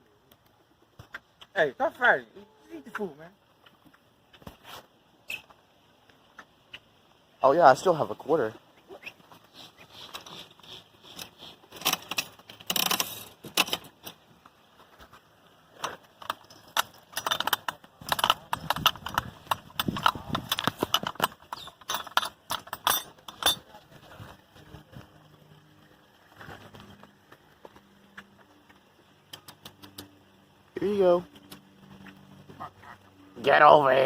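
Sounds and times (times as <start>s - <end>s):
feed dispenser crank clicking: 16.2s - 23.6s.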